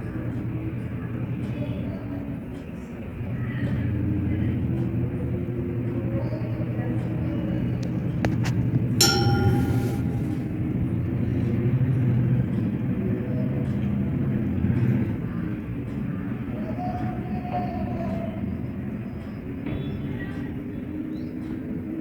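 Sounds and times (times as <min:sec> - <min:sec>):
short ringing tone: 0:09.0 - 0:10.8.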